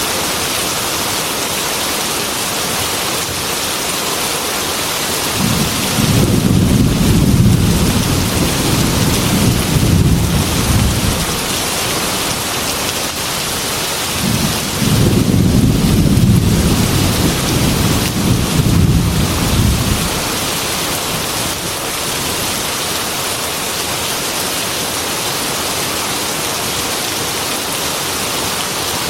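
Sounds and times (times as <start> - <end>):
heavy rain on a metal roof: 0.0 - 29.0
thunder rumbling: 5.3 - 12.9, 13.6 - 21.4.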